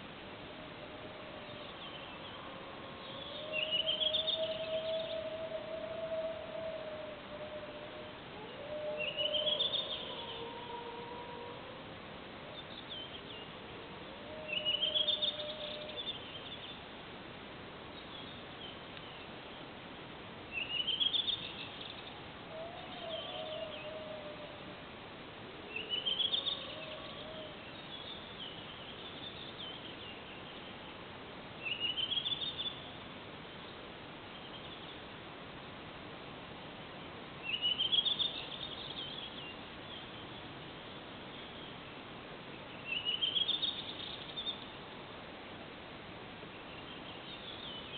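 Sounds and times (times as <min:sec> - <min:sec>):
faint long wavering howls: 0:00.2 - 0:16.3, 0:22.4 - 0:25.0, 0:25.6 - 0:27.9.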